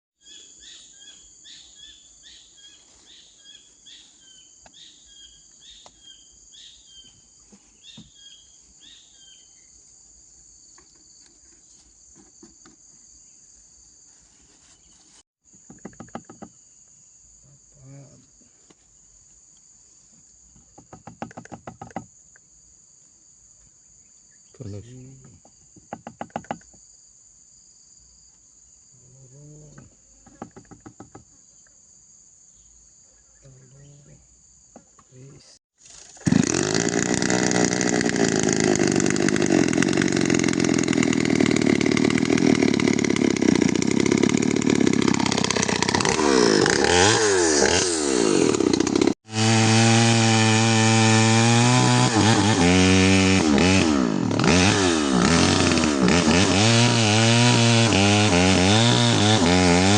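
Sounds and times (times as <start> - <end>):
insects chirring: 0.2 - 36.3
chainsaw revving and cutting wood: 36.0 - 59.9.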